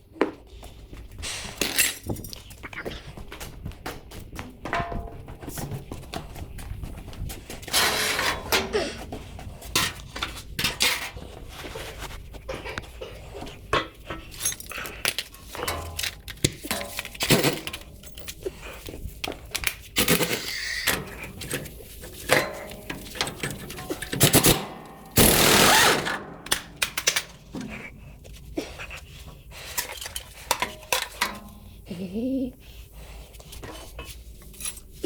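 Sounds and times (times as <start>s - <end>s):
metal tools clanking: 1.6s - 3.0s, 13.7s - 18.4s, 20.0s - 27.8s, 29.7s - 31.6s.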